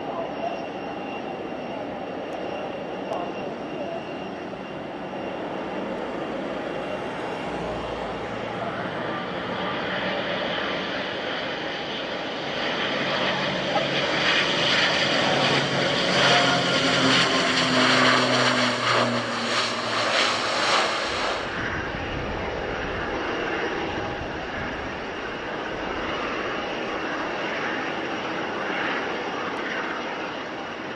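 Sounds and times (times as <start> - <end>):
airliner engine noise: 0.0 - 30.9
propeller drone: 0.0 - 30.9.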